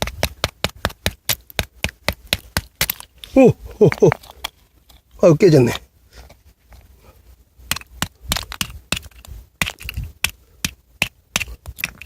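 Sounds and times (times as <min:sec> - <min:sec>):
oyster shells cracking: 0:00.0 - 0:05.1, 0:07.7 - 0:12.0.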